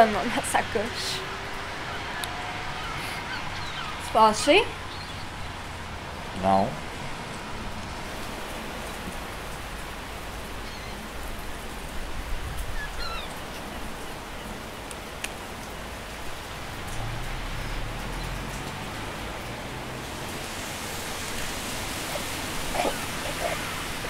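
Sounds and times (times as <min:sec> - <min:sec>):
outdoor background hiss: 0:00.0 - 0:24.0.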